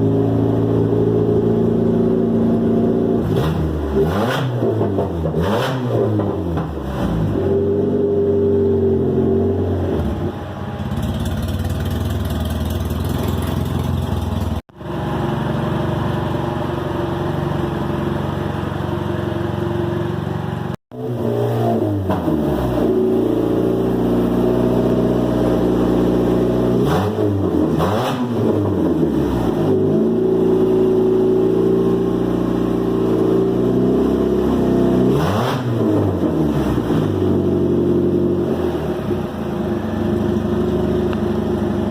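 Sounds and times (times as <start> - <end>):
race car engine revving: 0.3 - 10.4, 20.9 - 41.9.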